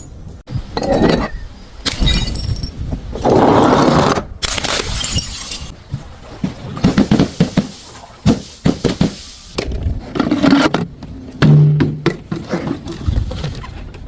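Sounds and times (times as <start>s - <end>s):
glass bottles smashing: 1.9s - 2.8s, 4.8s - 5.8s.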